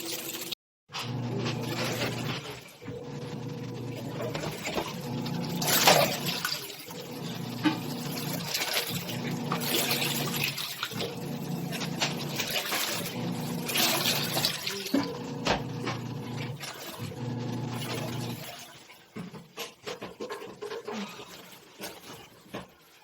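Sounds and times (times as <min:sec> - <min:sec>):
washing machine motor humming: 0:01.0 - 0:18.6
water sloshing and splashing: 0:03.8 - 0:23.0.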